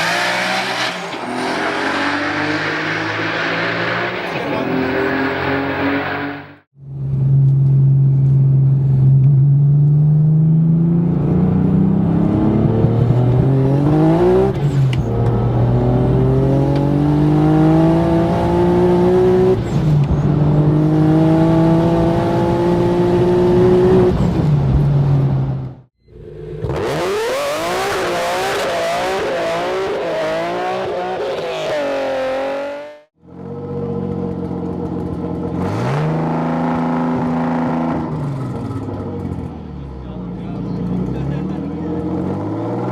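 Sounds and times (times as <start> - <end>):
car engine accelerating through gears: 0.0 - 6.6, 9.0 - 24.4
engine revving up and down: 0.0 - 6.6, 10.1 - 19.6, 26.3 - 33.1.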